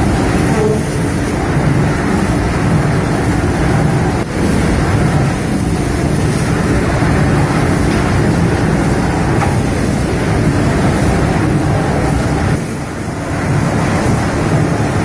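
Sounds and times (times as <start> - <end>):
steam engine running: 0.0 - 15.0.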